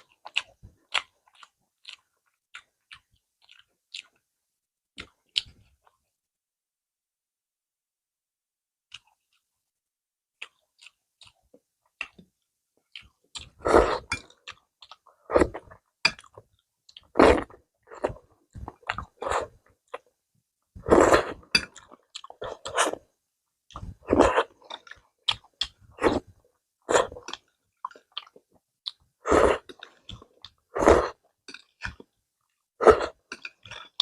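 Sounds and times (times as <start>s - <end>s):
loud chewing of food: 0.0s - 4.2s, 23.7s - 34.0s.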